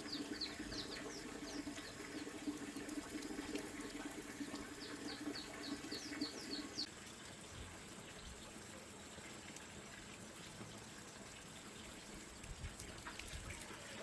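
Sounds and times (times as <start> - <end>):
small bird chirping: 0.0 - 2.3, 4.7 - 6.9
water running and splashing: 0.0 - 14.0.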